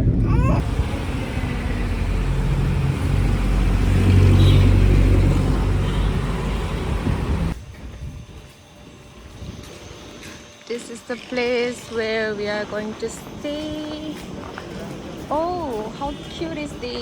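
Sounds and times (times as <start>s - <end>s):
traffic noise: 0.0s - 7.6s, 12.4s - 17.0s.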